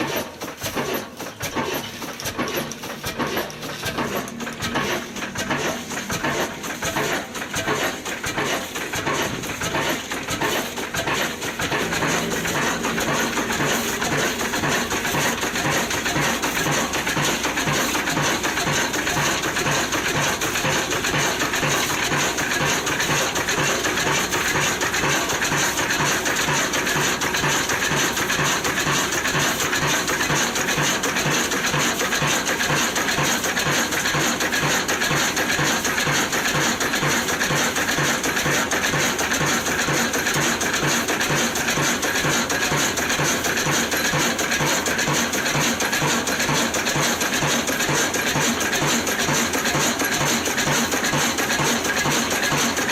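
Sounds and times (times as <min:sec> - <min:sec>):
metallic clatter: 0:00.0 - 0:28.9
diesel engine running: 0:00.0 - 0:52.9.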